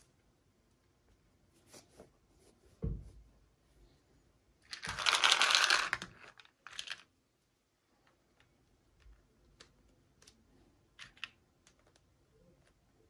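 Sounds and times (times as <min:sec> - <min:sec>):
low thump: 0:02.8 - 0:03.2.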